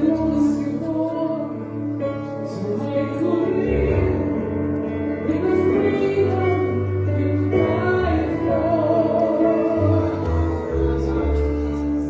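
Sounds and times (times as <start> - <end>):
keyboard and bass chords: 3.0 - 12.0
singers holding sustained notes: 5.2 - 12.0.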